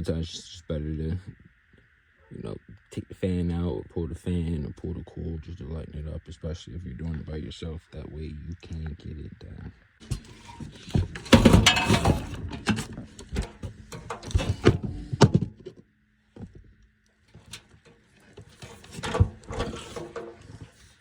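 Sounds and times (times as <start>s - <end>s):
metal clunks and knocks: 10.0s - 15.8s, 17.3s - 20.9s.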